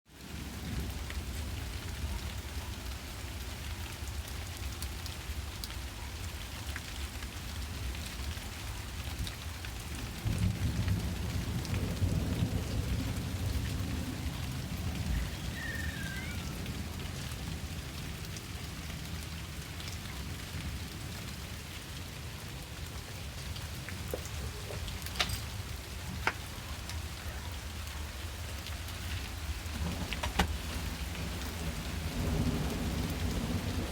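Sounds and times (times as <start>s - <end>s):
steady rain: 0.0s - 33.9s
sharp water drips: 0.7s - 29.8s
distant thunder rumble: 9.8s - 33.9s.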